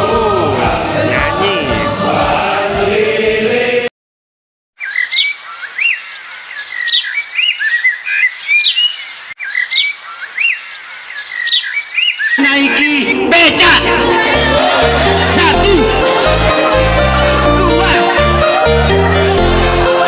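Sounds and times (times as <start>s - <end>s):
group singing: 0.0s - 3.9s, 13.6s - 20.0s
birds chirping and calling: 4.8s - 13.3s.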